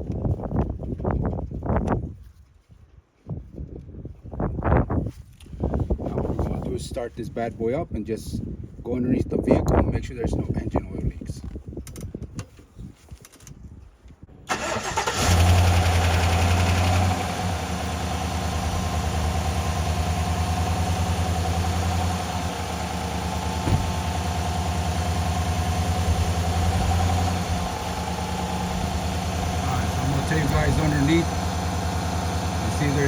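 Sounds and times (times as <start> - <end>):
car engine starting and idling: 14.5 - 33.0.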